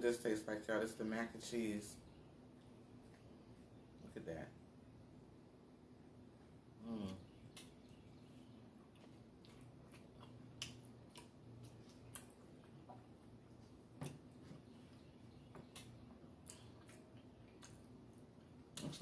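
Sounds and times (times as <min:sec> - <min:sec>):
low steady hum: 0:00.0 - 0:19.0
person chewing wetly: 0:07.0 - 0:19.0.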